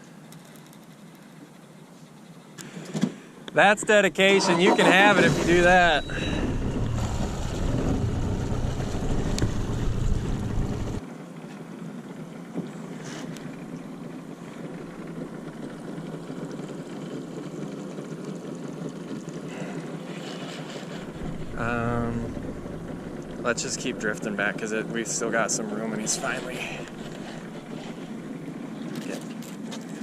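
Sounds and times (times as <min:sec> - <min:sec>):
river water and boat noise: 0:00.0 - 0:30.0
wind rumbling on microphone: 0:05.2 - 0:11.0, 0:20.9 - 0:28.8.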